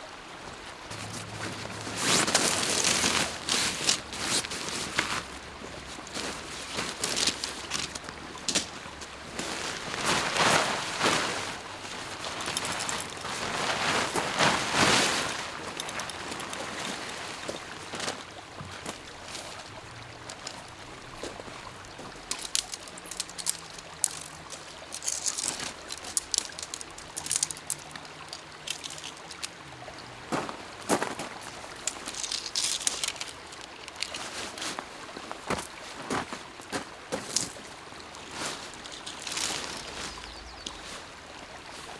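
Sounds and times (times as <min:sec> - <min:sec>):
lake water sloshing and trickling: 0:00.3 - 0:41.9
small splashes and drips: 0:01.0 - 0:41.9.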